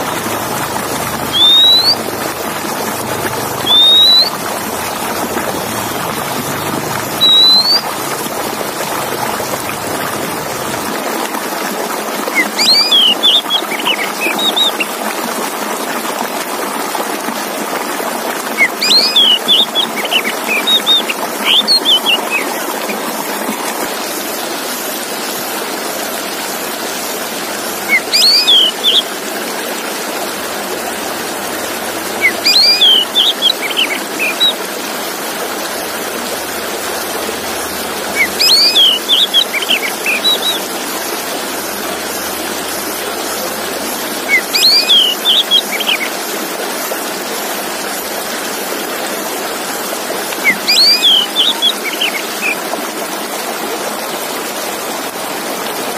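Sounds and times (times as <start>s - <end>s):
rushing water: 0.0s - 55.9s
bird whistling song: 0.8s - 8.4s, 12.4s - 14.9s, 18.6s - 22.6s, 27.7s - 29.0s, 31.4s - 34.6s, 36.3s - 40.9s, 41.8s - 46.1s, 50.4s - 52.6s.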